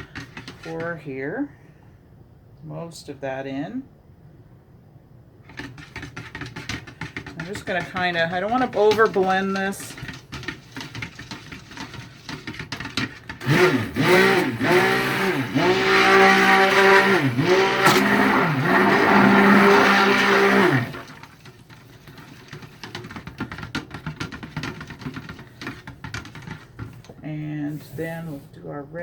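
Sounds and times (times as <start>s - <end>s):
stick blender motor: 10.0s - 21.4s
faint clatter: 21.0s - 28.3s.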